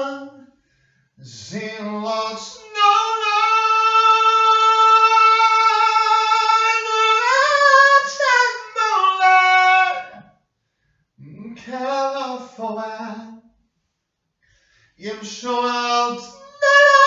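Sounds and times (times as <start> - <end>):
person singing unaccompanied: 1.3 - 10.2, 15.0 - 17.0.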